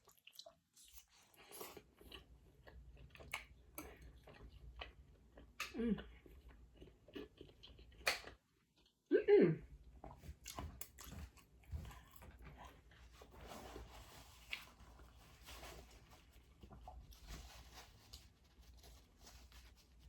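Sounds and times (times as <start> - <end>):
person chewing food: 0.0 - 9.0, 9.8 - 15.4.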